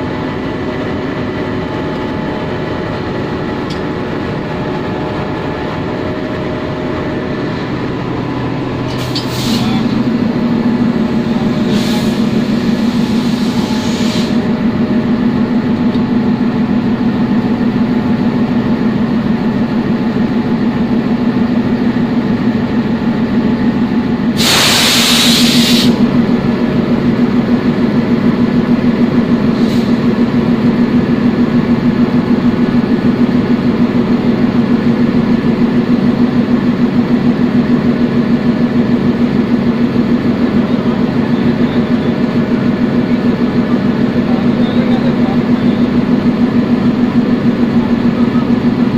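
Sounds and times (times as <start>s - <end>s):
diesel locomotive engine running: 0.0s - 48.9s
air hissing: 8.9s - 9.9s, 11.4s - 14.5s, 24.3s - 26.0s.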